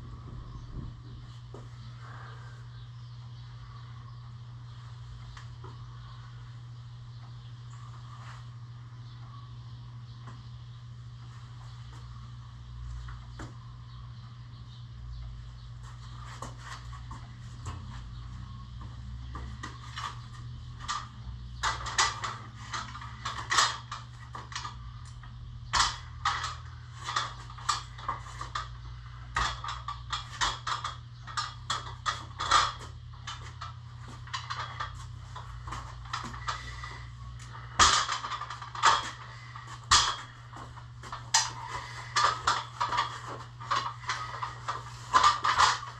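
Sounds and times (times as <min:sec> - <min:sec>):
steady low hum: 0:00.0 - 0:45.9
knocks and clanks of heavy equipment: 0:18.9 - 0:45.9.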